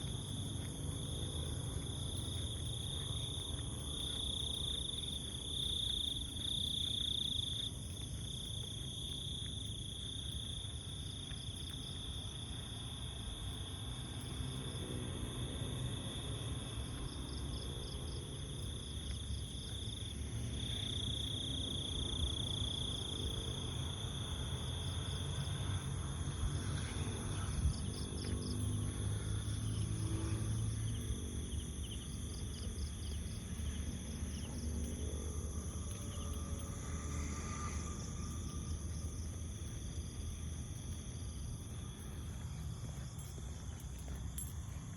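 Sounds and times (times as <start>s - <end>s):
rapid pulsed insect chirps: 0.0s - 44.9s
insects trilling: 26.7s - 44.9s.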